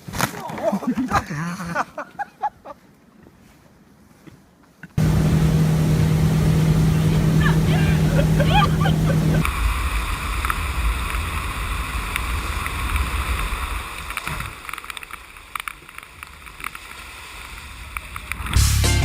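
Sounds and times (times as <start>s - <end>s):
wind: 0.0s - 18.7s
water rumbling: 5.0s - 14.6s.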